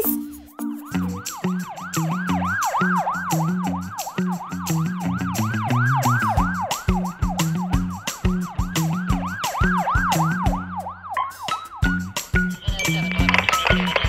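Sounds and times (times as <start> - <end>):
children's music with drum beat: 0.0 - 14.0
cartoon siren wailing: 0.8 - 11.4.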